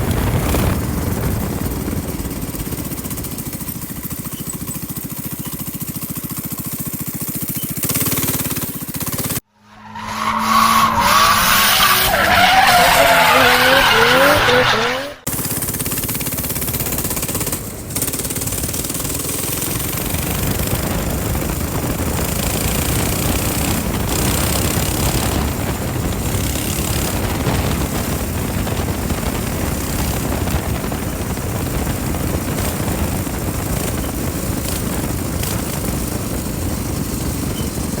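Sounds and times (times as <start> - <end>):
wind rush on microphone: 0.0 - 3.4, 19.7 - 38.0
minibike engine running: 0.0 - 9.5, 11.0 - 38.0.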